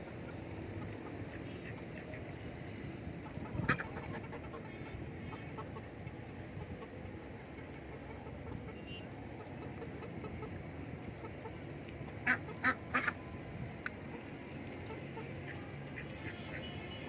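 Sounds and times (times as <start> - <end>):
ducks quacking: 0.0 - 2.5, 3.2 - 5.9, 11.2 - 13.2, 14.0 - 17.0
chickens clucking: 0.0 - 16.8.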